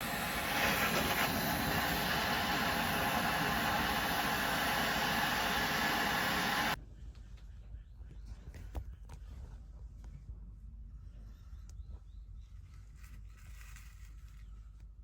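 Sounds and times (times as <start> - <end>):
steady hiss: 0.0 - 6.8.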